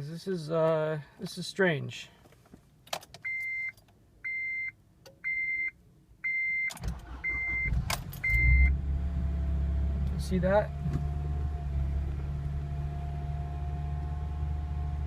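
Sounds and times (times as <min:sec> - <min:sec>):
car warning chime beeping: 0:03.2 - 0:08.8
car engine starter cranking: 0:06.7 - 0:08.7
car engine cold start running: 0:06.8 - 0:10.0.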